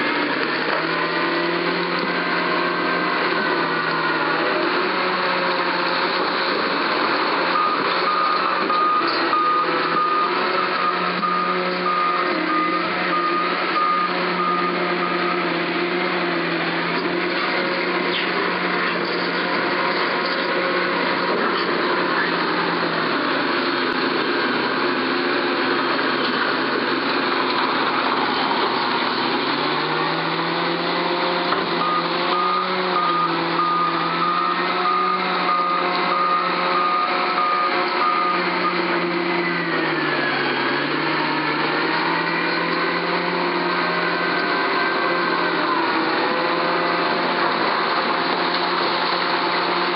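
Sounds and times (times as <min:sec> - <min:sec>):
heavy diesel engine running: 0:00.0 - 0:49.9
reversing alarm beeping: 0:07.5 - 0:15.6, 0:31.7 - 0:39.1.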